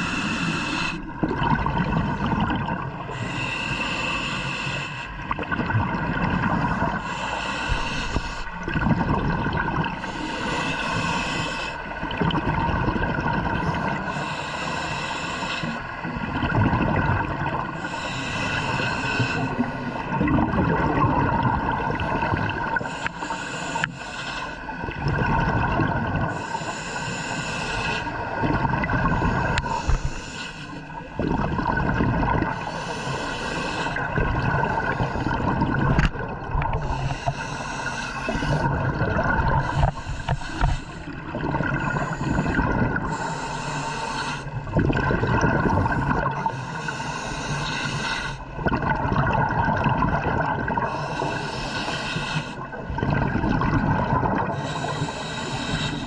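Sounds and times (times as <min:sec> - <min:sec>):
diver breathing through regulator: 0:00.0 - 0:01.2, 0:01.8 - 0:05.4, 0:06.4 - 0:08.8, 0:09.8 - 0:12.0, 0:13.5 - 0:16.2, 0:17.6 - 0:20.2, 0:22.0 - 0:24.8, 0:26.2 - 0:44.8, 0:45.6 - 0:48.6, 0:50.7 - 0:53.0, 0:54.4 - 0:56.0
exhaled bubble bursts: 0:01.0 - 0:03.0, 0:08.6 - 0:10.0, 0:20.1 - 0:22.8, 0:24.9 - 0:26.3, 0:31.2 - 0:32.6, 0:34.0 - 0:37.0, 0:38.3 - 0:40.0, 0:44.6 - 0:46.5, 0:48.6 - 0:50.9, 0:52.7 - 0:54.5.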